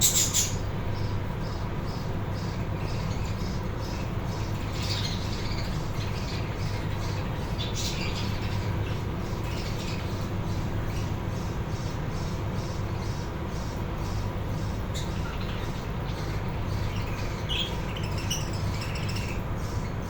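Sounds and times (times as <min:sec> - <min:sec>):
budgie squawks: 0:00.0 - 0:00.6
budgies chirping: 0:00.0 - 0:19.9
steady low hum: 0:00.0 - 0:20.0.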